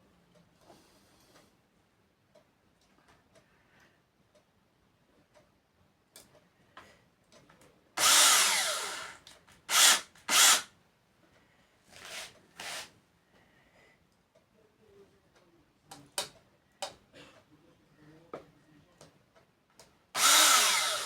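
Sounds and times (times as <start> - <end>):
electric drill-driver bursts: 8.0 - 10.7, 12.0 - 12.9, 20.2 - 21.0.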